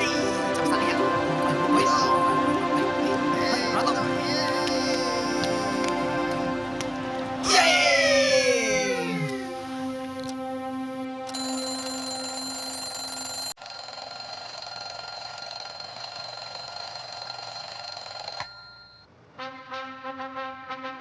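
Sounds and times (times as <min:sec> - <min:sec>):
steady electronic tones: 0:00.0 - 0:12.2.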